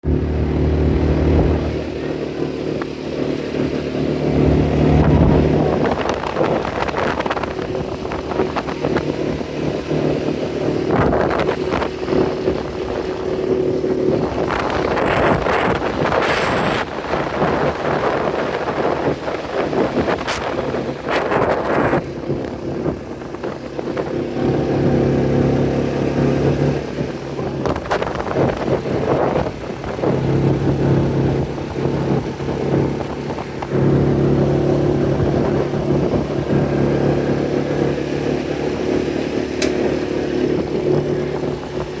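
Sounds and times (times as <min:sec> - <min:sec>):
engine humming: 0:00.0 - 0:42.0.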